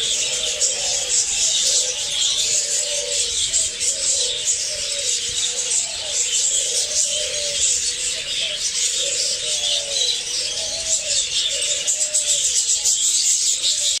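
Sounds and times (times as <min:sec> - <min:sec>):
parrots chattering and chirping: 0:00.0 - 0:14.0.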